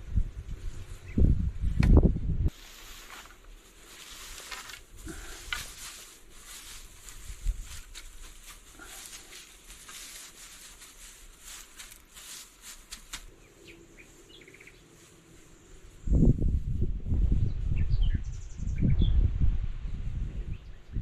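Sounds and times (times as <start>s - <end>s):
scratchy rustling background: 2.5s - 16.9s
birds chirping: 13.3s - 15.9s.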